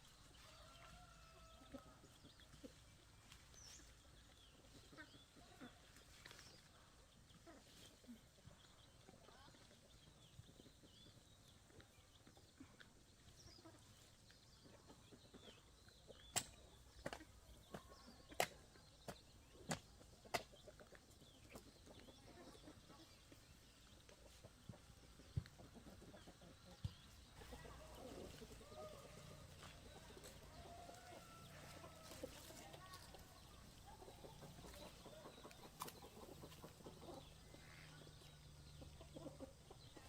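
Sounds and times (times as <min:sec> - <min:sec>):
faint clucking calls: 0:19.6 - 0:40.0.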